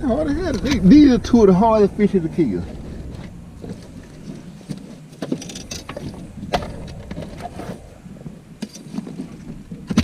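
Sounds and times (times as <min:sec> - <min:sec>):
steady low hum: 0:00.0 - 0:10.0
knocks and clatter in boat: 0:02.6 - 0:10.0.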